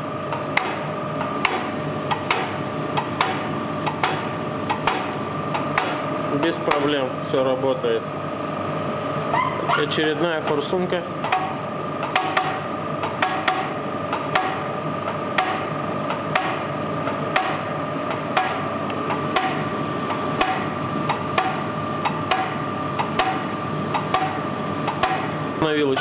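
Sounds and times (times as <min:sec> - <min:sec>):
machine humming: 0:00.0 - 0:26.0.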